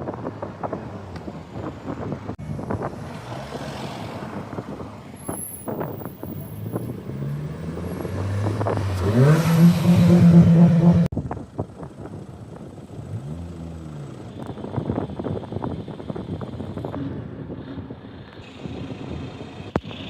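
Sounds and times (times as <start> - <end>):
car engine revving: 6.2 - 11.1.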